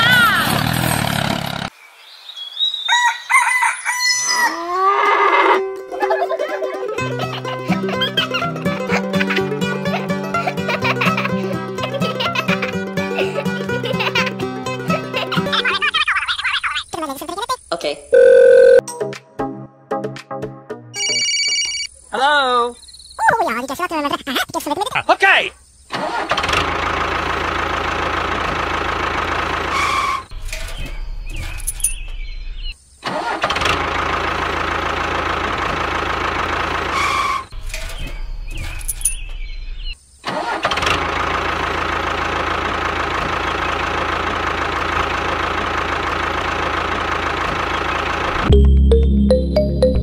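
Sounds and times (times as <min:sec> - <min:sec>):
tractor engine running: 0:00.0 - 0:01.7, 0:25.9 - 0:50.0
music: 0:05.6 - 0:15.6, 0:18.8 - 0:21.1, 0:48.5 - 0:50.0.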